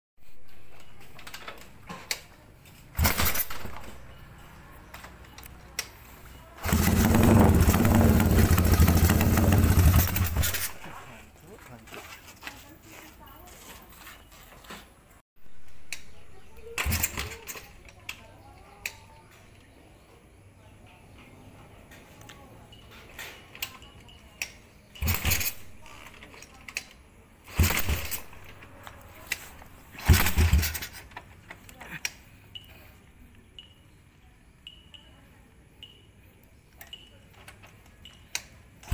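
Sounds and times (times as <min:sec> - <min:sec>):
motorcycle engine running: 0:06.6 - 0:11.1, 0:29.9 - 0:31.0.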